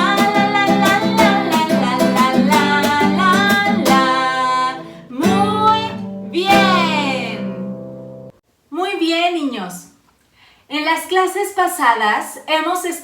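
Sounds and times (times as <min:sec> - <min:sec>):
person singing: 0:00.0 - 0:07.6
strummed acoustic guitar: 0:00.0 - 0:08.3.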